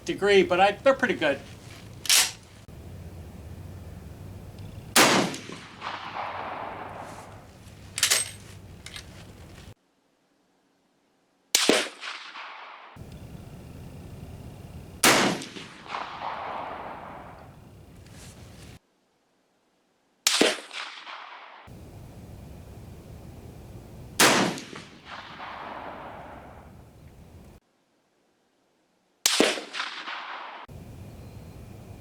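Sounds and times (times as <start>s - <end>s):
light sharp crack: 0.2s - 2.7s
rifle shots with echo: 0.3s - 2.4s, 4.2s - 9.6s, 11.6s - 13.7s, 15.0s - 18.1s, 20.3s - 21.6s, 24.2s - 26.8s, 29.3s - 30.7s.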